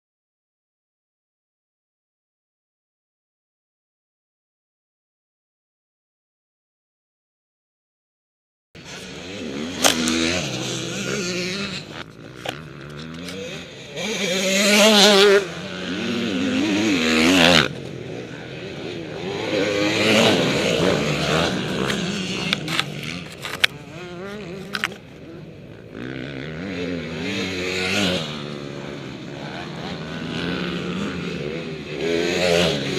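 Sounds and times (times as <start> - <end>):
motorcycle engines revving: 8.8 - 32.9.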